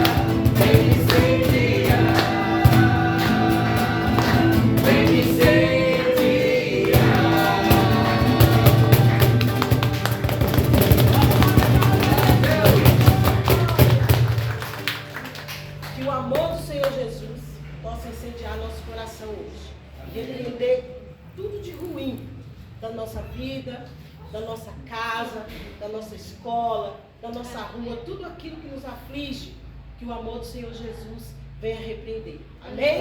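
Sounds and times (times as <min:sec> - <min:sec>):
voices singing worship song: 0:00.0 - 0:14.2
band playing steady beat: 0:00.0 - 0:15.1.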